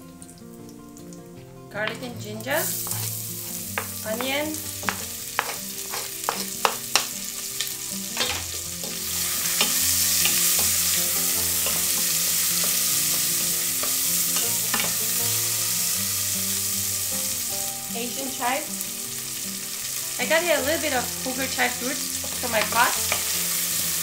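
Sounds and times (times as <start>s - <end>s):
oil sizzling loudly: 0.0s - 24.0s
wooden spoon stirring: 2.6s - 7.1s.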